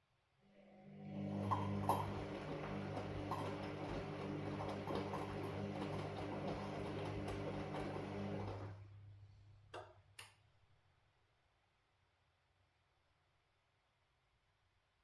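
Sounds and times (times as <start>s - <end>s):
washing machine motor humming: 0.9s - 9.1s.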